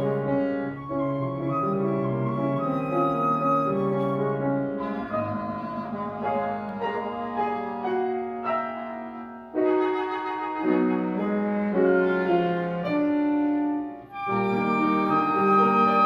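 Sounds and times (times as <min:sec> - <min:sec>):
woodwind quintet playing: 0:00.0 - 0:16.0.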